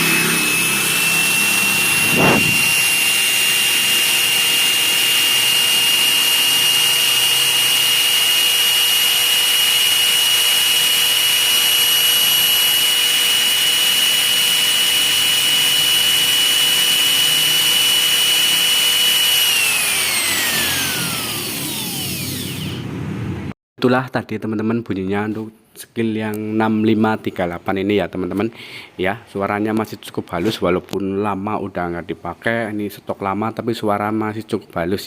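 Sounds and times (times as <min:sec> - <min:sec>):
electric drill whining: 0:00.0 - 0:23.0.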